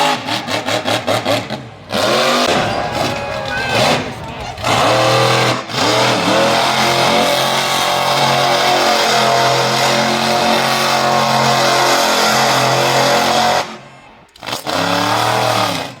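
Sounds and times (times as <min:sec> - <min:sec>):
truck engine revving: 0:00.1 - 0:13.7.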